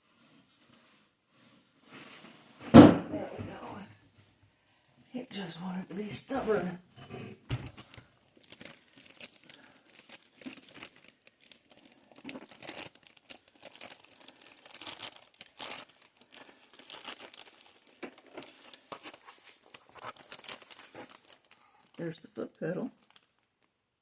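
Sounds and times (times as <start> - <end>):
packing material crinkling: 7.6 - 23.8.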